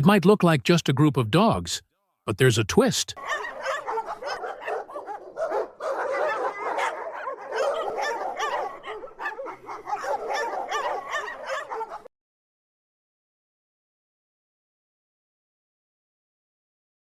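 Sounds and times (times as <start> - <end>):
dogs yipping and barking: 3.2 - 12.1.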